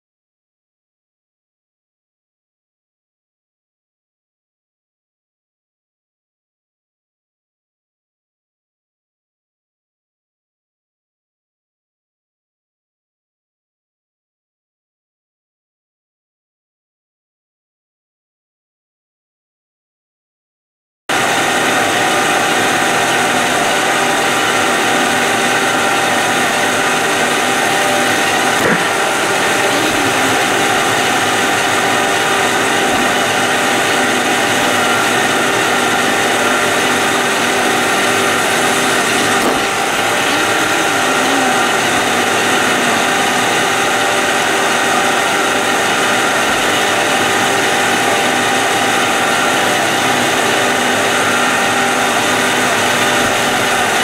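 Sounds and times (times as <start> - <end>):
robot vacuum whirring: 21.2 - 54.0.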